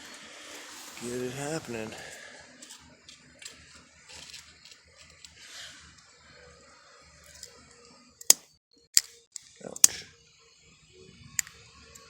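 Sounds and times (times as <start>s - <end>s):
paper rustling and scraping: 0.0s - 5.8s.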